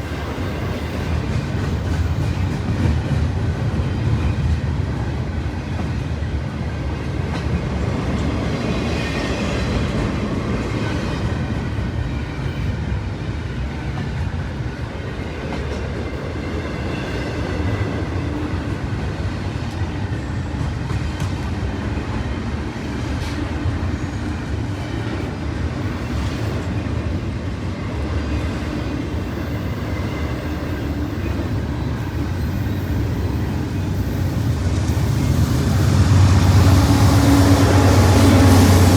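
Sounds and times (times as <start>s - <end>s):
train rumbling past: 0.0s - 38.9s.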